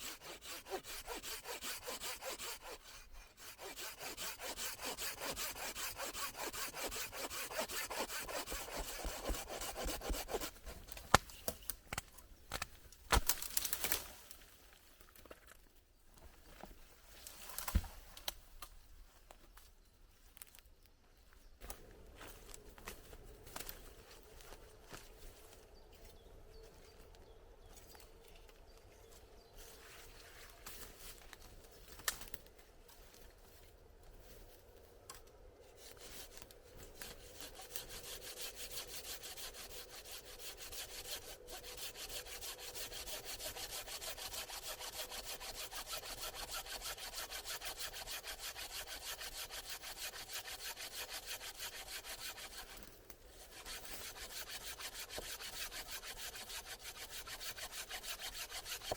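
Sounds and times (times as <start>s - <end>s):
hand saw cutting wood: 0.0s - 11.1s, 35.8s - 58.9s.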